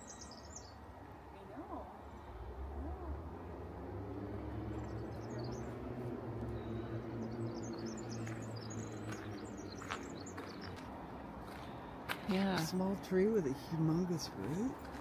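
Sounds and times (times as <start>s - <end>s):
small birds chirping: 0.0s - 2.4s, 4.3s - 15.0s.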